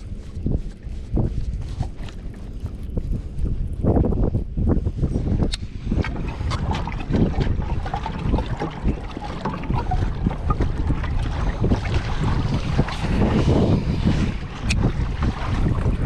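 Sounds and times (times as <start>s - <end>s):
wind buffeting microphone: 0.0s - 16.0s
knocks and clicks from boat: 5.1s - 16.0s.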